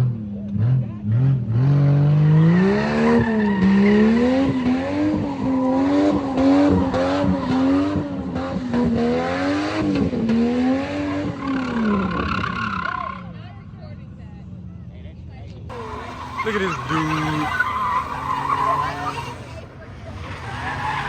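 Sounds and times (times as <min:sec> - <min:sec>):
car engine revving high: 0:00.5 - 0:13.1, 0:15.7 - 0:19.7
tyres hissing and squealing: 0:15.7 - 0:19.7.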